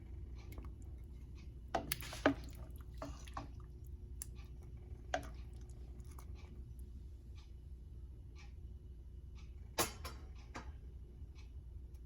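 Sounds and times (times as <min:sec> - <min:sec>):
low steady hum: 0:00.0 - 0:12.0
kitchen clicks and wet knocks: 0:01.6 - 0:04.4.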